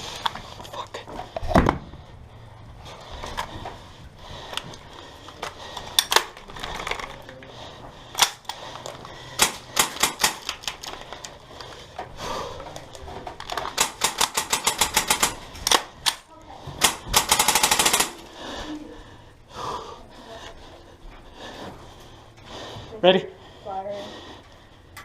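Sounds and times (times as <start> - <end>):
airsoft guns firing: 9.4 - 10.9, 13.5 - 16.2, 16.8 - 18.3.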